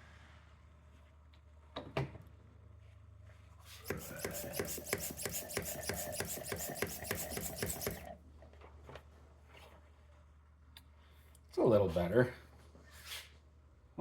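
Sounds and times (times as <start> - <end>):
suction tool slurping oil: 3.8 - 8.2.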